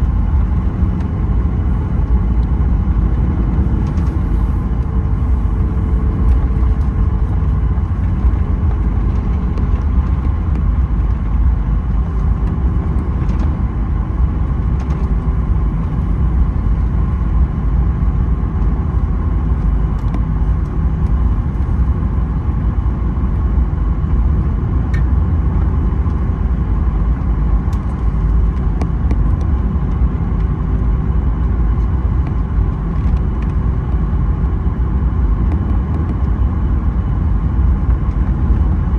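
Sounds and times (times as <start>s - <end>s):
aircraft cabin rumble: 0.0s - 38.9s
jet engine whine at idle: 0.0s - 38.9s.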